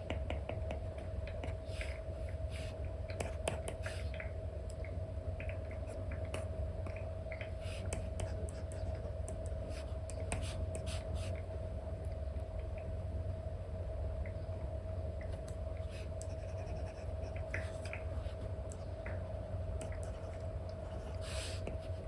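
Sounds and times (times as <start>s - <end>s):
steady low hum: 0.0s - 22.0s
stylus scratching on screen: 16.0s - 18.4s.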